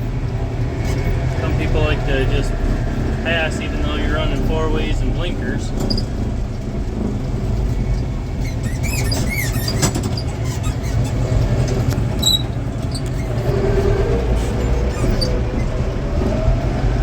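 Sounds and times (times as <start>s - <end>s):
tractor engine rumbling: 0.0s - 17.0s
seat squeaking: 0.6s - 16.0s.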